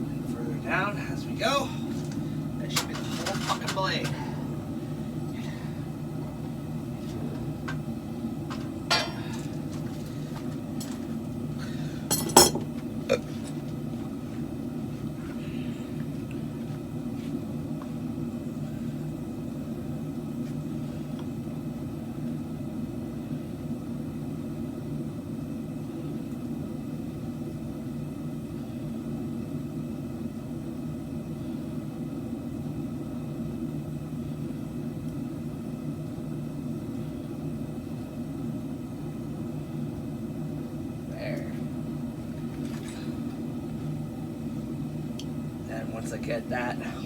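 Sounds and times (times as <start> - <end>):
low rumble of smithing equipment: 0.0 - 47.0.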